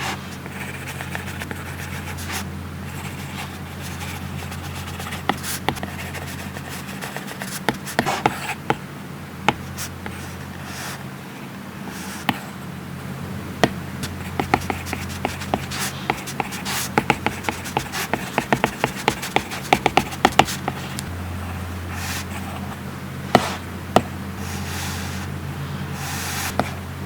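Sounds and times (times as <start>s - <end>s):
steady low hum: 0.0s - 27.0s
stylus tapping on tablet screen: 13.6s - 21.1s.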